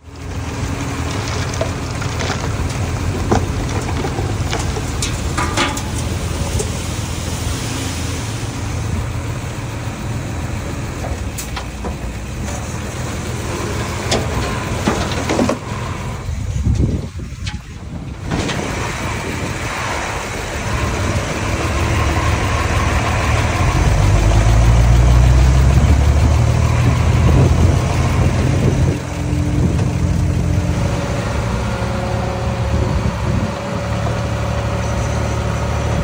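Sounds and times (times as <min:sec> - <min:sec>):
bulldozer diesel engine running: 0:00.0 - 0:36.0
sharp knocks and clatter: 0:01.2 - 0:06.8.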